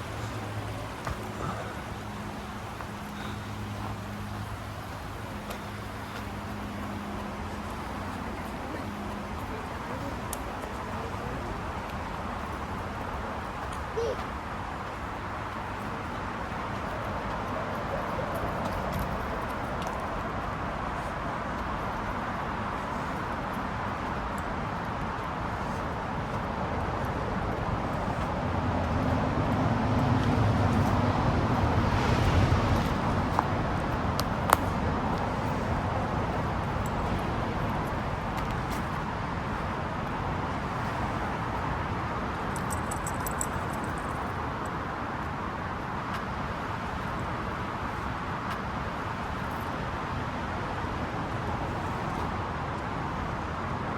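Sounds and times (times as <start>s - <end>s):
steady rushing background noise: 0.0s - 53.9s
motor vehicle passing: 15.5s - 41.6s.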